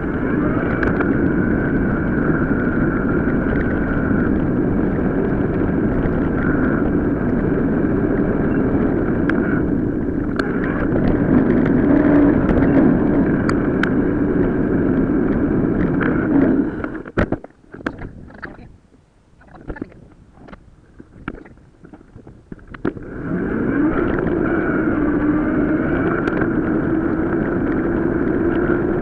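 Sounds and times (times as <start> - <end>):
sharp clicks and rattles: 0.0 - 18.7, 19.4 - 29.0
tyre rumble: 0.0 - 18.7
wind: 0.0 - 29.0.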